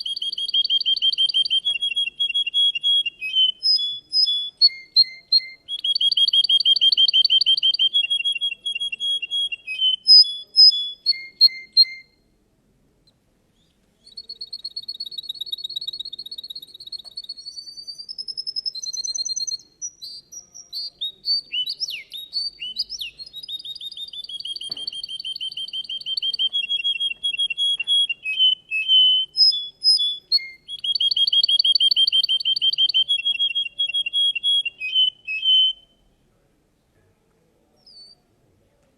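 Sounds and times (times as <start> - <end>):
canary singing trills: 0.0 - 12.2, 13.6 - 36.1.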